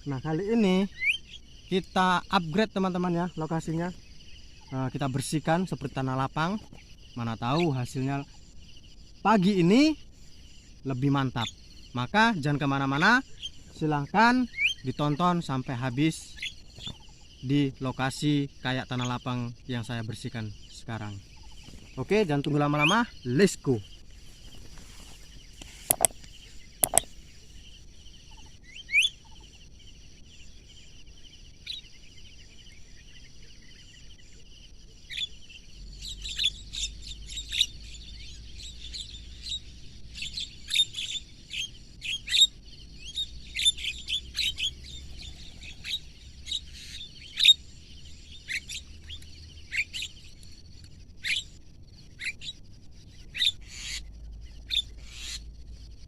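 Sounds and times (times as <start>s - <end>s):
birds chirping: 0.0s - 56.0s
sharp clicks: 25.6s - 27.1s.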